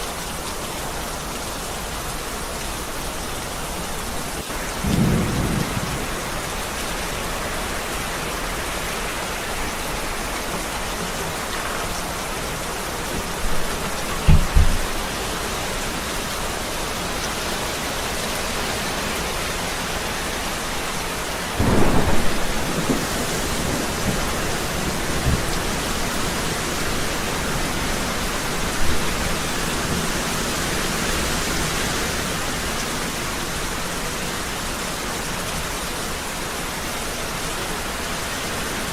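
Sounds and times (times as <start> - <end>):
heavy rain falling: 0.0 - 38.9
thunder: 4.5 - 7.0, 21.6 - 26.7.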